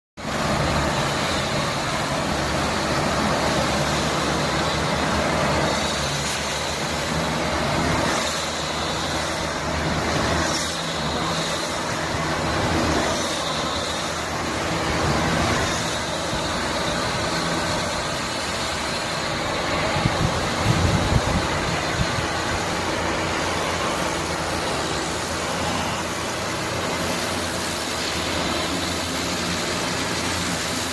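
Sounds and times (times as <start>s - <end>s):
broad hiss: 0.2s - 30.9s
mechanical drone with hum: 0.2s - 30.9s.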